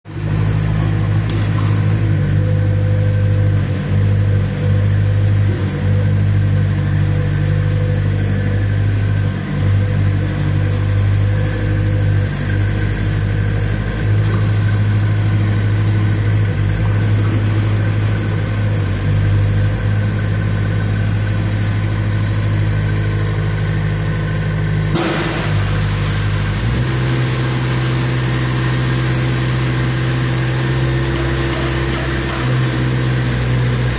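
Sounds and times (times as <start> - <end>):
excavator diesel engine running: 0.1 - 33.9
hiss: 25.0 - 28.4.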